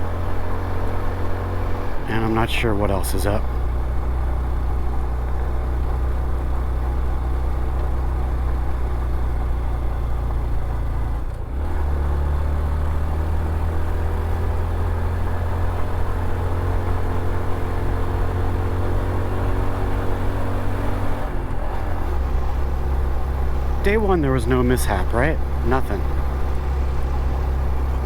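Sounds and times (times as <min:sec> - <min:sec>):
motorcycle engine running: 0:22.3 - 0:28.0.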